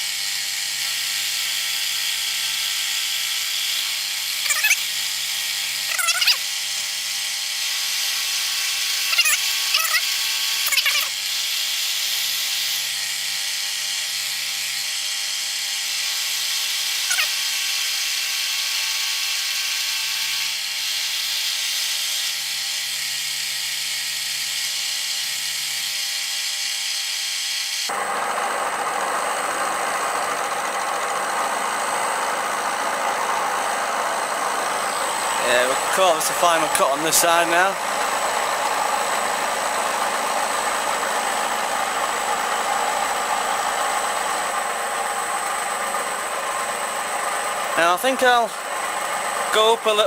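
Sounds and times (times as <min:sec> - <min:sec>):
milling machine whirring: 0:00.0 - 0:50.0
milling cutter squealing: 0:00.4 - 0:27.9, 0:29.0 - 0:50.0
high whine: 0:27.9 - 0:42.5.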